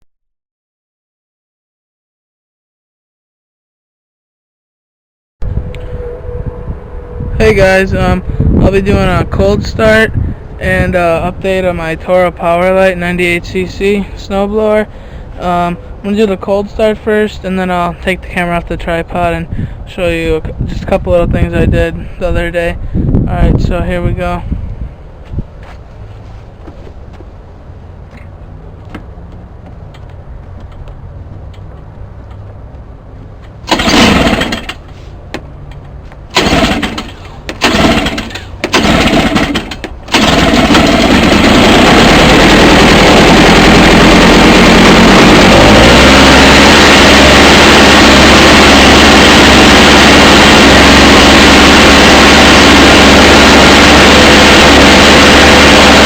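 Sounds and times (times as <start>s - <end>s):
snowblower engine cranking and sputtering: 33.6s - 35.2s, 35.8s - 56.0s
snowblower engine running: 33.7s - 35.0s, 36.3s - 56.0s.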